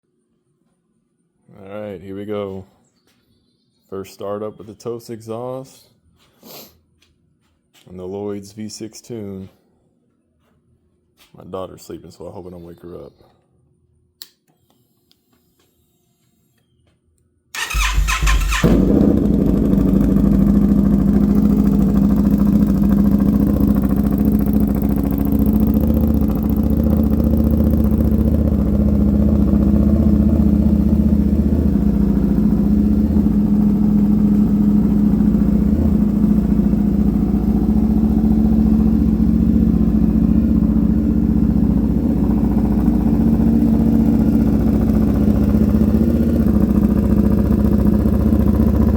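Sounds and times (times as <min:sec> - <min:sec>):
starter motor cranking: 0:17.6 - 0:18.7
motorcycle engine idling: 0:17.6 - 0:48.9.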